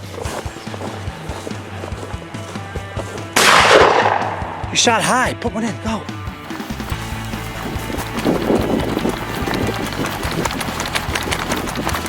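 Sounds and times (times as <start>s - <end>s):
footsteps crunching through field: 0.0s - 5.3s, 6.0s - 12.0s
background music: 0.0s - 12.0s.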